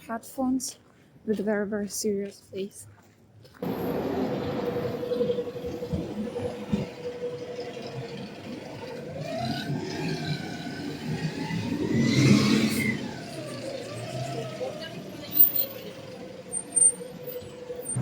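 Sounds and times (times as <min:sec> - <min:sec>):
large vehicle passing: 0:03.6 - 0:18.0.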